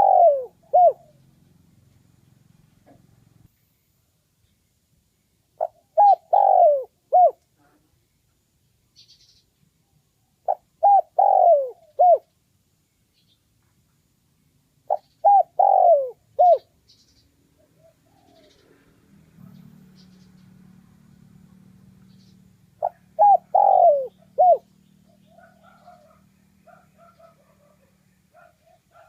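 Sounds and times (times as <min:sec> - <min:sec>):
dove cooing: 0:00.0 - 0:01.4, 0:05.6 - 0:07.4, 0:10.4 - 0:12.3, 0:14.9 - 0:16.8, 0:17.6 - 0:20.1, 0:22.8 - 0:29.0
small bird chirping: 0:00.0 - 0:29.0.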